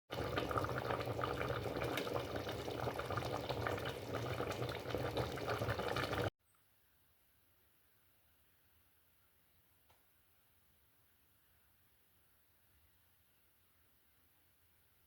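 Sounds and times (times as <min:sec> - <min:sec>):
water popping and crackling: 0:00.1 - 0:06.3.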